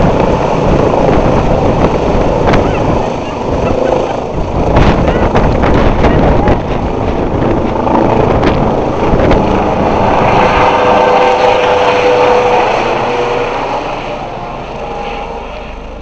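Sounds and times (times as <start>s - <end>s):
helicopter rotor noise: 0.0s - 16.0s
helicopter turbine whine: 0.0s - 16.0s.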